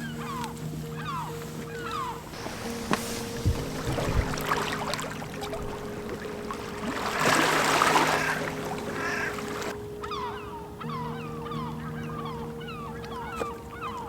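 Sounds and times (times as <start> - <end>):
small waves lapping: 0.0 - 14.0
water splashing: 0.0 - 14.0
low thumps: 2.4 - 9.7.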